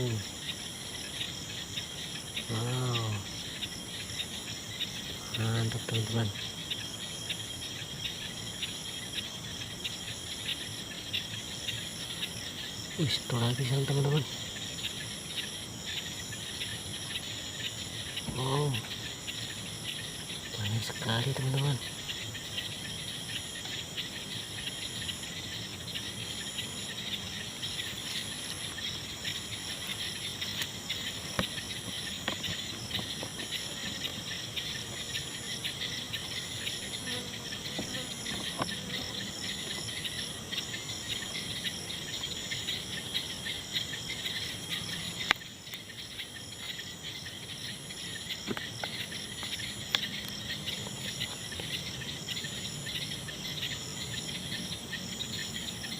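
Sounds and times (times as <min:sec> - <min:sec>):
crickets chirring: 0:00.0 - 0:55.9
insect pulsed trill: 0:00.0 - 0:55.9.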